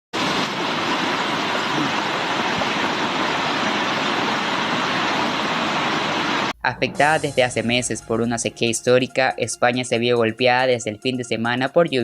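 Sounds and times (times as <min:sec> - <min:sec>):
water rushing: 0:00.1 - 0:08.8.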